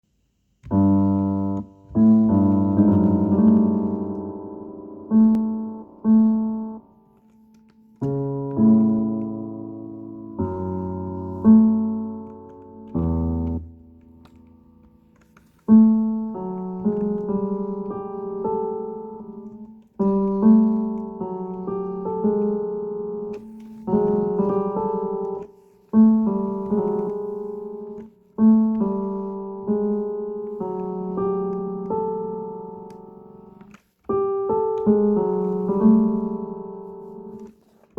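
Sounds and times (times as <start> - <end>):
scary piano phrase: 0.7 - 14.9.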